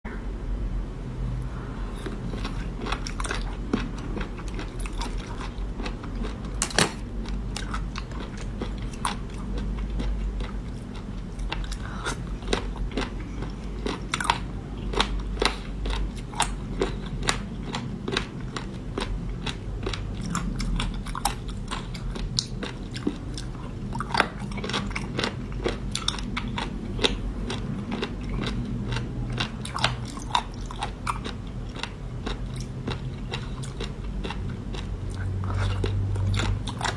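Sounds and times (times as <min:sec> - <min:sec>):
steady low hum: 0:00.0 - 0:36.9
person chewing seafood: 0:01.9 - 0:36.9
sharp crunches and cracks: 0:06.5 - 0:07.1.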